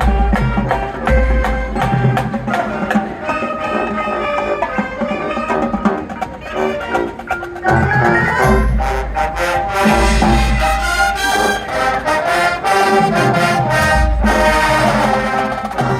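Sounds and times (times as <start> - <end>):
heavy low drum hits: 0.0 - 3.0
marching band playing: 0.0 - 15.9.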